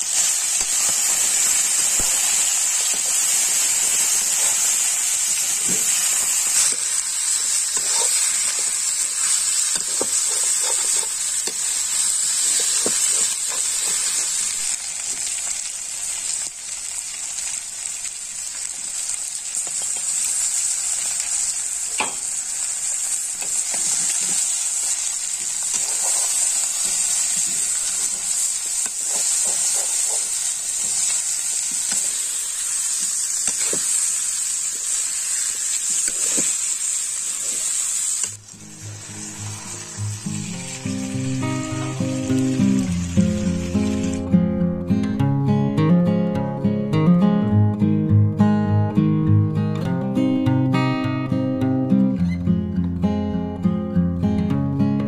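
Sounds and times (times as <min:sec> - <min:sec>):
chicken sizzling in pan: 0:00.0 - 0:44.3.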